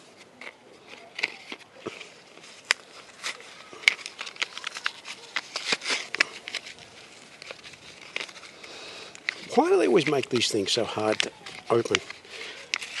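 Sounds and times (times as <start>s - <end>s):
plastic packaging crackling: 0.0s - 13.0s.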